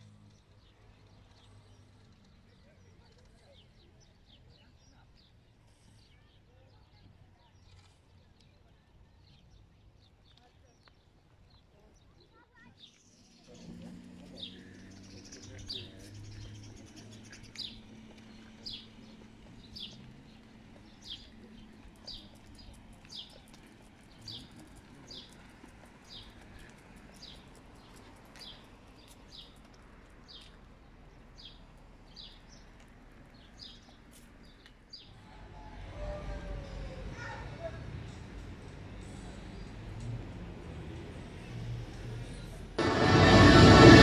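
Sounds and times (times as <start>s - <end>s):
bird chirping high downward sweeps: 42.8s - 44.0s.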